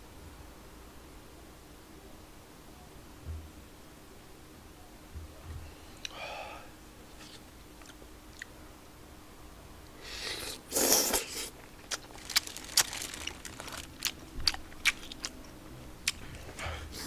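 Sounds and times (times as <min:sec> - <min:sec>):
chewing with sharp clicks: 0:07.8 - 0:08.6, 0:11.6 - 0:16.6
loud mouth sound: 0:10.0 - 0:11.6.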